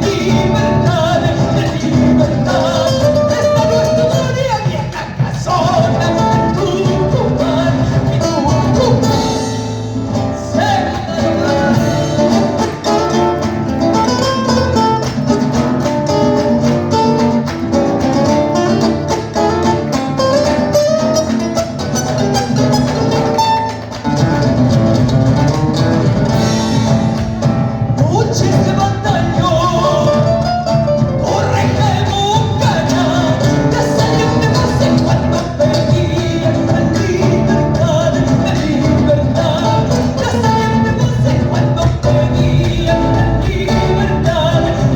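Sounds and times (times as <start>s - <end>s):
latin music over pa: 0.0s - 44.9s
woman singing: 31.2s - 44.9s.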